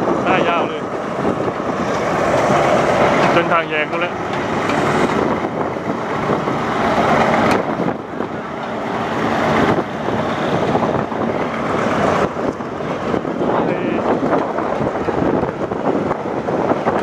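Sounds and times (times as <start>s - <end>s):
passenger train running noise: 0.0s - 17.0s
second train passing: 0.0s - 17.0s.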